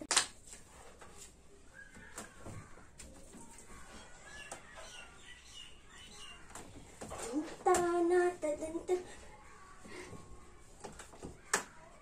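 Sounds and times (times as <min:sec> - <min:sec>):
faint bird chirps: 0:01.5 - 0:07.5.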